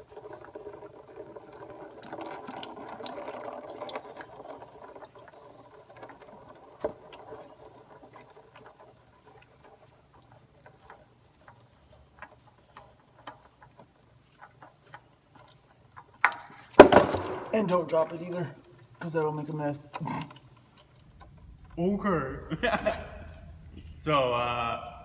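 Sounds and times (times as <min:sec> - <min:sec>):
oil pouring into drain pan: 0:00.0 - 0:19.1
oil dripping: 0:00.0 - 0:25.0.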